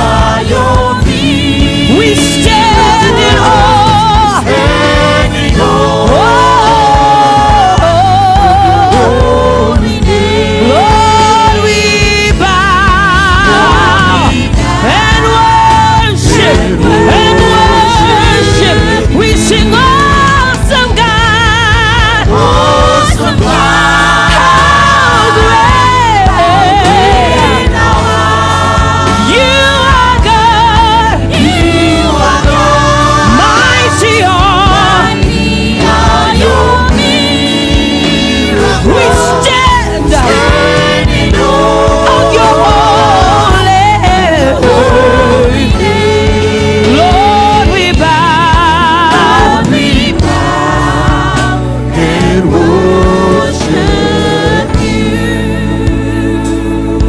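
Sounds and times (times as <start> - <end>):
band with bass and drums: 0.0 - 57.0
voices singing with vibrato: 0.0 - 57.0.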